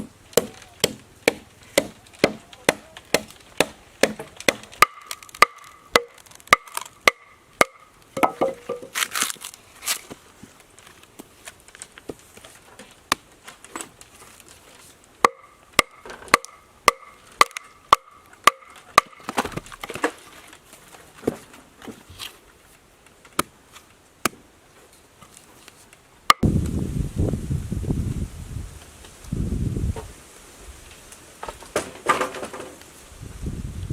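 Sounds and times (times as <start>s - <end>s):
wood chopping blows: 0.0s - 10.0s, 15.2s - 20.2s
low rustling noise: 19.6s - 33.9s.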